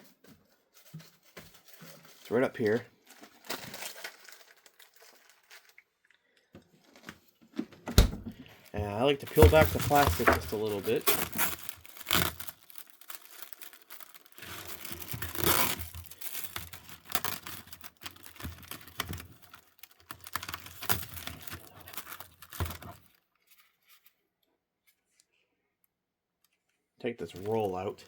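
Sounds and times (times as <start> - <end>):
plastic film peeling and crackling: 0.6 - 6.2, 8.4 - 24.3, 27.3 - 28.0.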